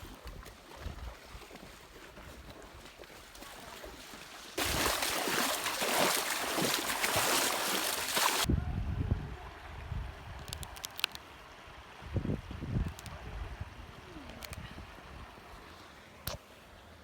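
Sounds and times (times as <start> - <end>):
river water rushing: 3.5 - 8.5.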